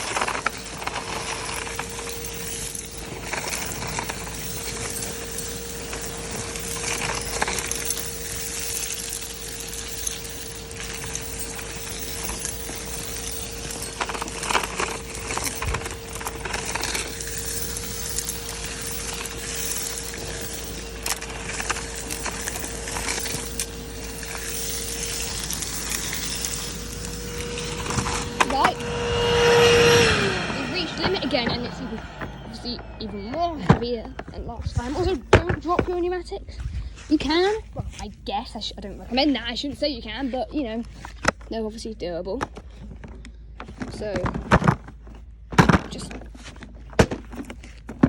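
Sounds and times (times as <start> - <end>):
debris rattling through hose: 0.0 - 28.8
vacuum cleaner motor whine: 0.0 - 36.0.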